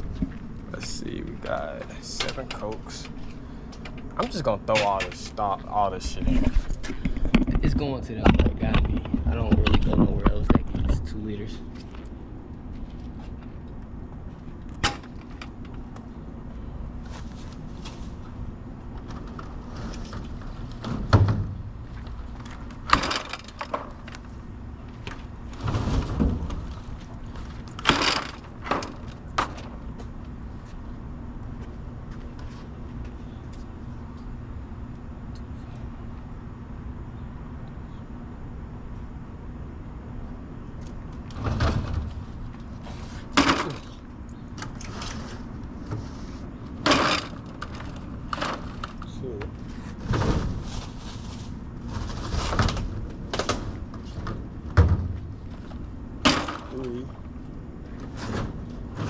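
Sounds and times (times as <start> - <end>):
steady low hum: 0.0 - 59.0
steady low rumble: 0.0 - 59.0
clatters and knocks: 6.1 - 11.1, 18.9 - 24.3
door sliding and banging: 19.0 - 21.8, 22.4 - 24.2, 25.0 - 29.8, 41.2 - 44.0, 49.6 - 56.8
bottles and cases clattering: 43.4 - 44.0, 46.8 - 49.1.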